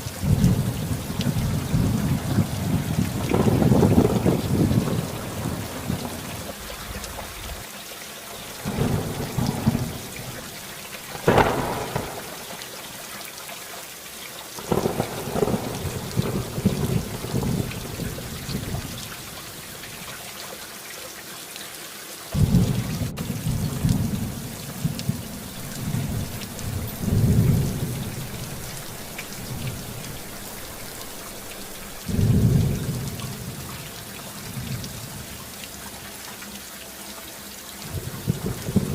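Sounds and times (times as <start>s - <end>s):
hiss of driving rain: 0.0s - 38.9s
deep rumbling thunder: 0.2s - 7.6s, 8.6s - 12.7s, 14.6s - 19.4s, 22.4s - 33.7s, 37.9s - 38.9s.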